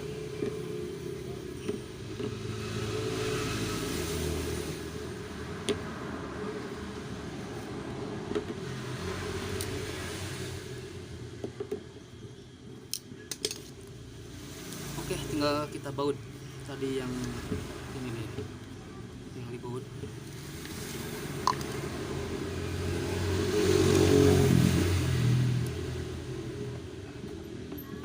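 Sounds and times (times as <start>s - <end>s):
motor vehicle rumble: 0.0s - 28.0s.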